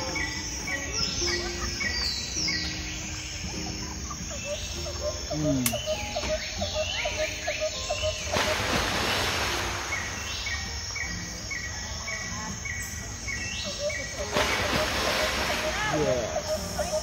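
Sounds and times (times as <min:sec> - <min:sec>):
bird calling repeatedly: 0:00.0 - 0:08.8, 0:11.8 - 0:17.0
birds chirping: 0:00.0 - 0:17.0.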